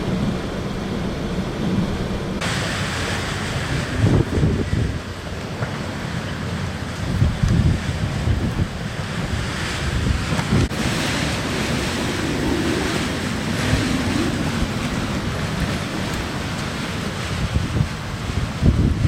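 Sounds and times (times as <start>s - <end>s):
blizzard wind blowing: 0.0s - 19.0s
wind buffeting microphone: 0.0s - 19.0s.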